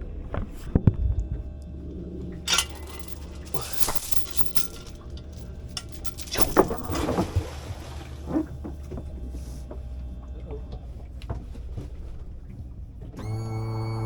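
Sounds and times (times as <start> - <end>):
light clinks and knocks: 2.4 - 10.0.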